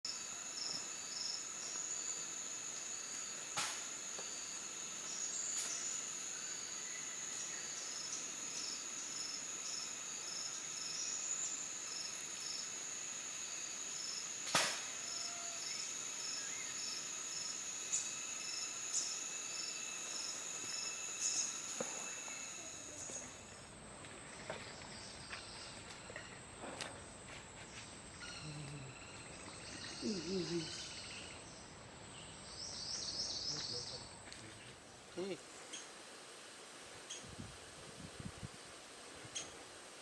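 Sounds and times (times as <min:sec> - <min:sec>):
insect high-pitched trill: 0:00.0 - 0:23.6
insect pulsed chirp: 0:00.0 - 0:23.7.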